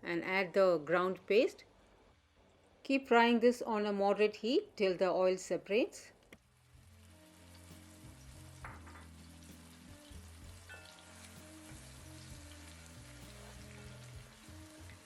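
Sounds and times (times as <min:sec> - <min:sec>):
paste sizzling in hot oil: 0:06.6 - 0:15.0.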